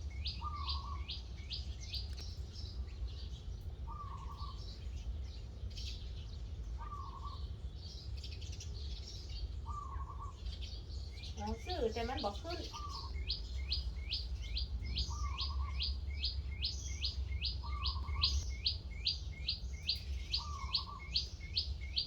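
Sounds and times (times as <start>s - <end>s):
high bird chirps: 11.2s - 22.0s.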